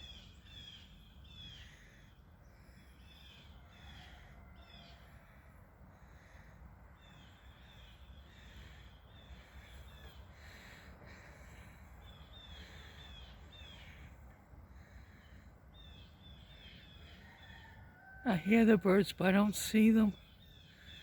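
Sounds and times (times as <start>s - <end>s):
faint bird chirps: 0.0s - 5.4s, 6.1s - 18.5s.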